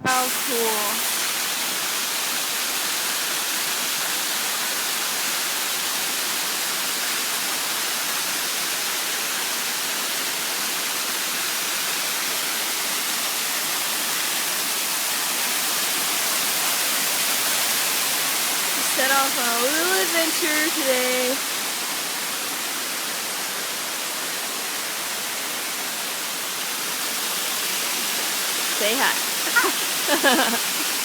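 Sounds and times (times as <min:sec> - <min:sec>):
waterfall rushing: 0:00.0 - 0:03.0, 0:15.4 - 0:31.0.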